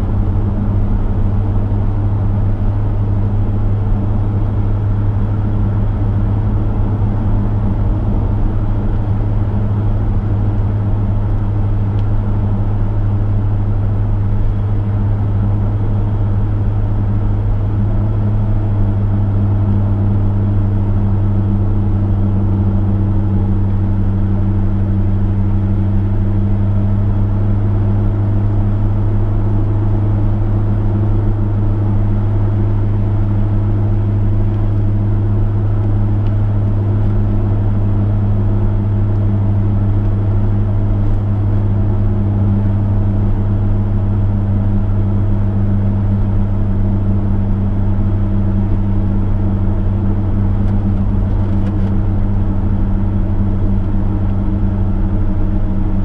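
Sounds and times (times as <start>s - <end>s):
car engine droning: 0.0s - 56.0s
tyre and road noise: 49.4s - 56.0s.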